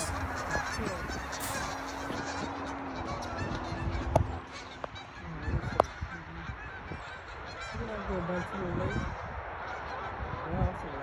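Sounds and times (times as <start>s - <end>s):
geese honking: 0.0s - 2.2s.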